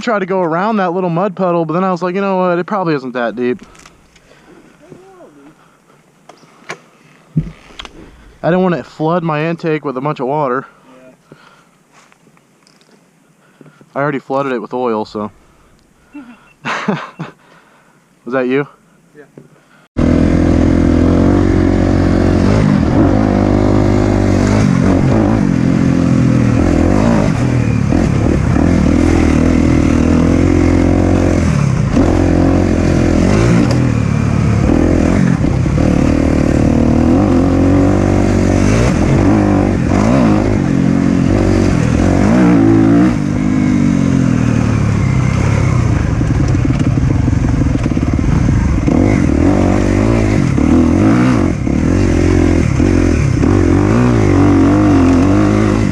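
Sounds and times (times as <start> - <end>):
dirt bike engine revving: 20.0 - 55.9.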